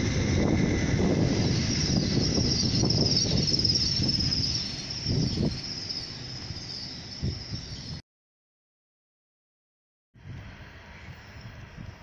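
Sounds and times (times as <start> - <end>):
high-pitched whine: 0.0 - 8.0
train wheels rumbling: 0.0 - 8.0.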